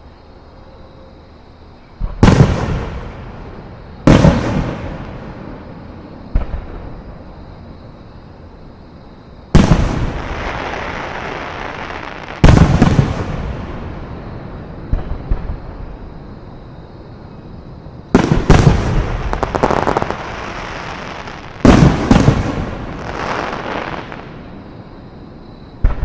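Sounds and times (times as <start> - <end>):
fireworks booming: 2.0 - 7.5, 9.5 - 16.2, 18.1 - 24.7, 25.8 - 26.0.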